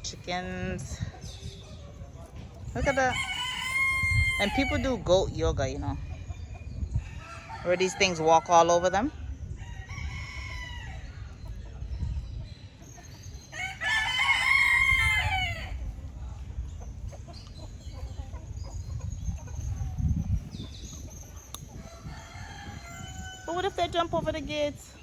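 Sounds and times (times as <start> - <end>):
rooster crowing: 3.0 - 4.8, 13.6 - 15.8.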